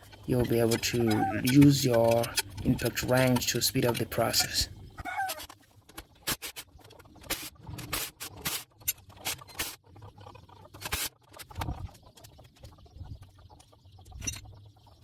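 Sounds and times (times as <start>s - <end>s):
metal tools clicking and scraping: 0.0s - 4.7s.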